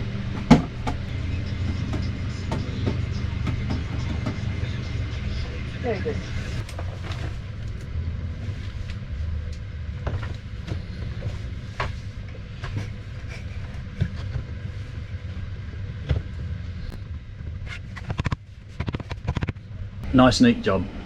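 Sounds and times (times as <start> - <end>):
steady low hum: 0.0 - 21.0
rapid clicks: 18.0 - 19.7.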